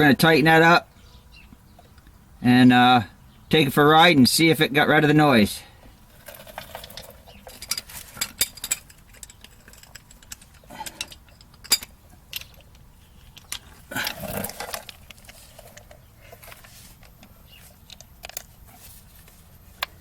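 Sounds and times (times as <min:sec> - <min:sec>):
scraping rustle: 0:06.1 - 0:11.1, 0:12.5 - 0:19.7.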